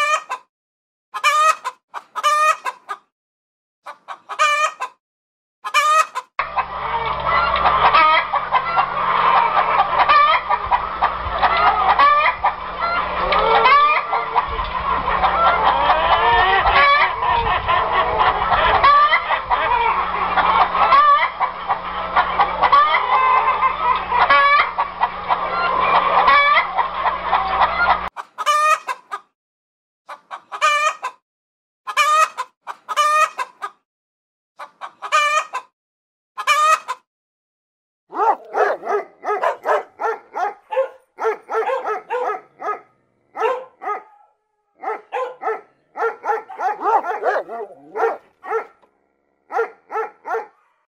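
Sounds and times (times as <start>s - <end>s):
hens clucking: 0.0s - 0.5s, 1.2s - 3.1s, 3.9s - 5.0s, 5.6s - 29.3s, 30.1s - 31.2s, 31.9s - 33.8s, 34.6s - 35.7s, 36.4s - 37.0s, 38.1s - 48.9s, 49.5s - 50.8s
rooster calling: 5.6s - 6.3s, 11.4s - 14.2s, 38.1s - 48.9s, 49.5s - 50.8s
dog barking: 38.1s - 48.8s, 49.5s - 50.8s.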